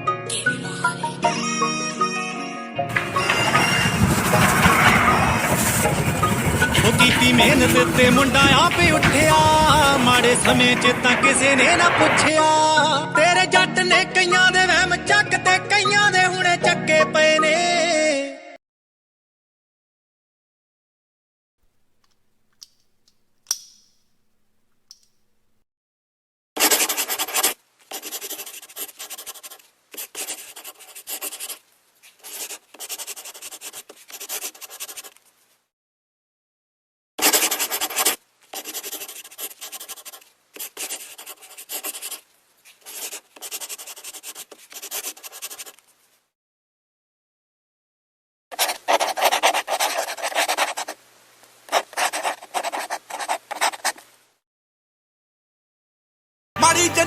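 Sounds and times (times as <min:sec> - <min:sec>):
rough abrasive rubbing: 0:02.9 - 0:12.3.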